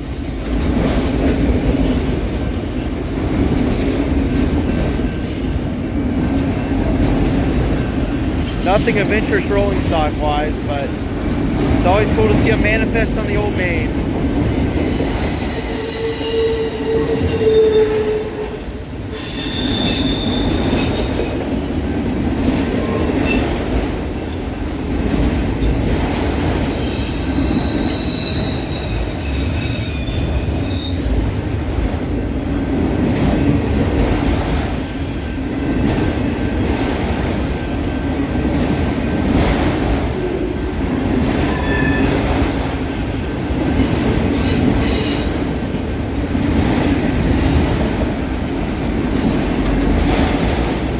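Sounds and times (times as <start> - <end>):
train wheels rumbling on rail: 0.0 - 50.9
high-pitched wheel squeals: 13.8 - 20.8, 26.6 - 31.0, 41.5 - 42.2.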